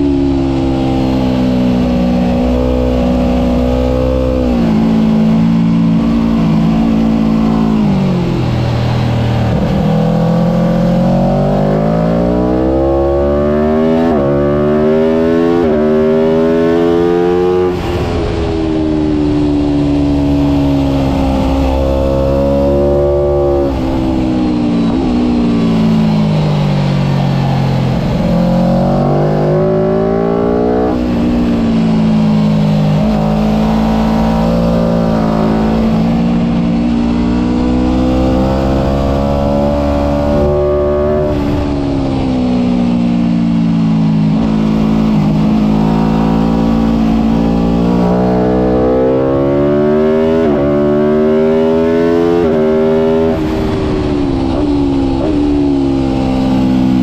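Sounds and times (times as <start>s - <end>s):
motorcycle engine at full throttle: 0.0s - 57.0s.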